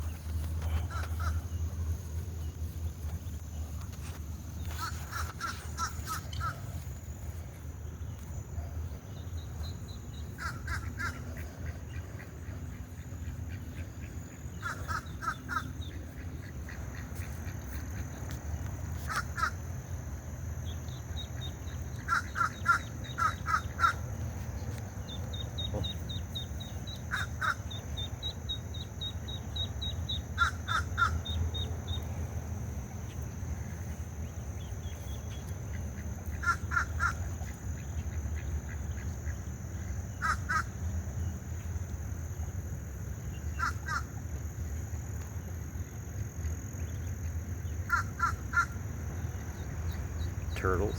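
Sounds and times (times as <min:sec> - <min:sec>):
crows cawing: 0:00.7 - 0:01.5, 0:10.4 - 0:11.2, 0:14.6 - 0:15.7, 0:22.1 - 0:24.0, 0:27.1 - 0:27.6, 0:30.4 - 0:31.2, 0:36.4 - 0:37.2, 0:40.2 - 0:40.7, 0:47.9 - 0:48.7.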